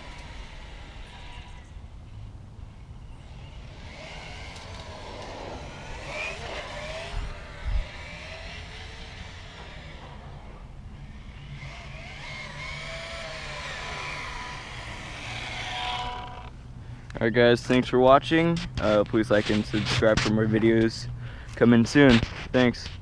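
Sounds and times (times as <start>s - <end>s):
rc car electric motor whine: 0.0s - 16.7s
rumble of tyres and drivetrain: 0.0s - 17.9s.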